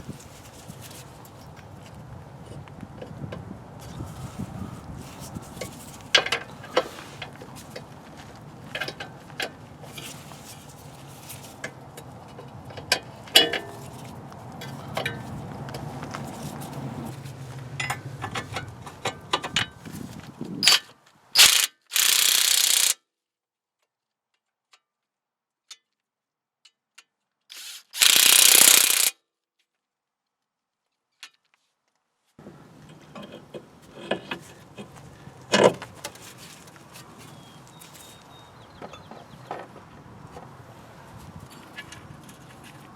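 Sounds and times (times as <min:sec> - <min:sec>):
metal tools clicking and clanking: 0:21.4 - 0:23.0, 0:27.5 - 0:29.1
short loud noise bursts: 0:21.4 - 0:23.0, 0:27.6 - 0:29.1.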